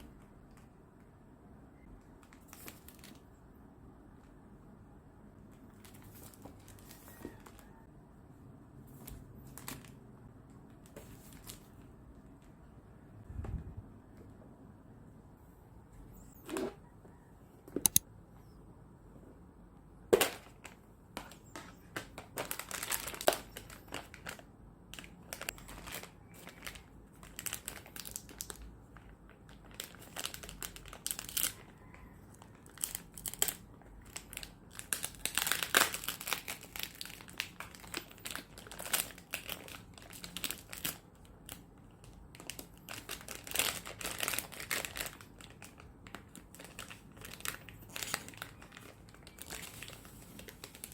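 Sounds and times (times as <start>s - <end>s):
packaging crinkling: 8.9s - 10.0s, 20.2s - 50.9s.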